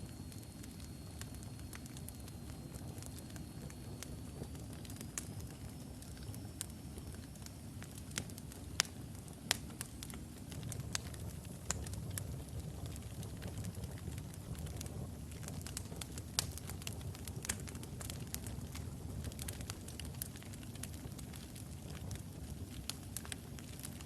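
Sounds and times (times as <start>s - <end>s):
fire crackles and pops: 0.0s - 24.0s
low rumble of flame: 0.0s - 24.0s.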